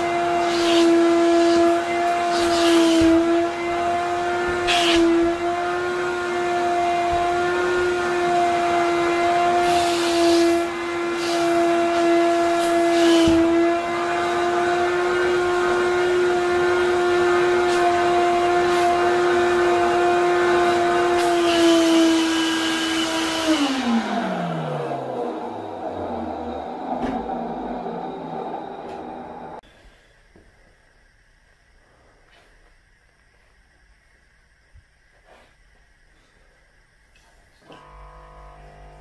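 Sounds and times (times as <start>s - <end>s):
wet vacuum motor running: 0.0s - 29.6s, 37.6s - 39.0s
motor winding down: 37.7s - 39.0s.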